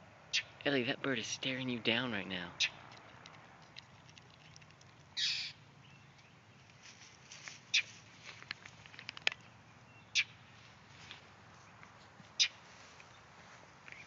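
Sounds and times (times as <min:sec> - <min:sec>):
small clicks and scuffles: 0:06.2 - 0:09.5.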